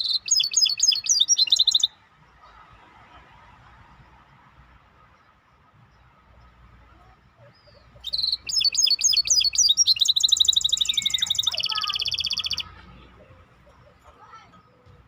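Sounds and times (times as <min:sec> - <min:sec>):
songbird trilling: 0:00.0 - 0:02.0, 0:07.5 - 0:12.8.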